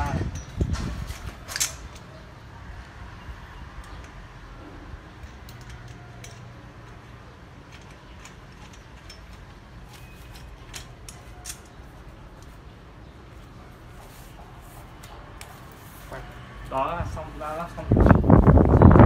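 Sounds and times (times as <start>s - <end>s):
metallic clicks of bolts: 5.1s - 9.6s.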